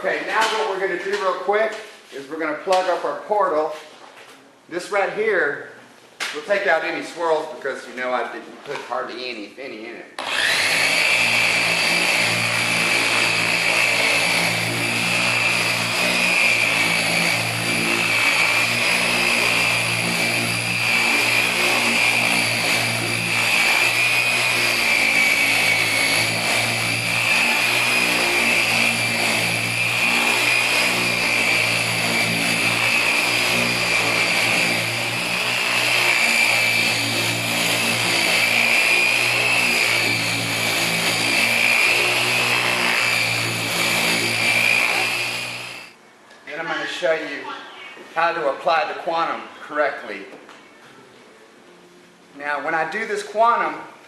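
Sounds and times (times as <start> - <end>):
electric polisher whining: 10.2 - 46.0.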